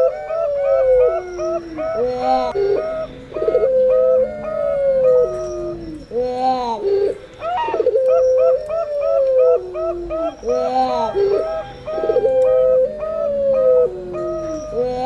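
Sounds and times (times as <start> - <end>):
doves cooing: 0.0 - 15.0.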